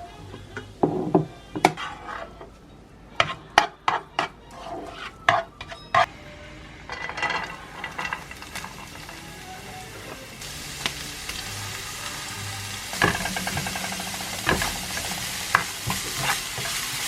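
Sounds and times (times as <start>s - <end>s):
utensil scraping a frying pan: 0.8s - 2.6s, 3.2s - 6.1s, 6.9s - 10.1s, 12.9s - 17.0s
tofu sizzling in a pan: 7.9s - 17.0s.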